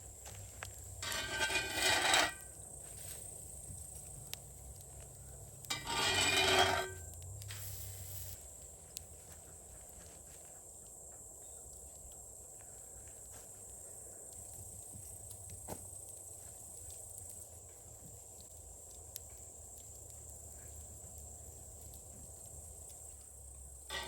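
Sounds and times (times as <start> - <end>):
short scraping rubbing sounds: 1.0 - 2.4, 5.7 - 7.0.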